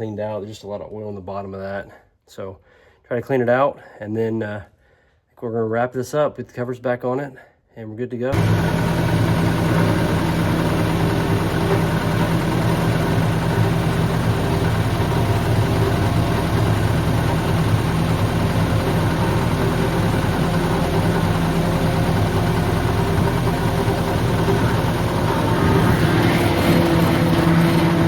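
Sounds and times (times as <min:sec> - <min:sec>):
diesel engine running steadily: 0:08.4 - 0:28.0.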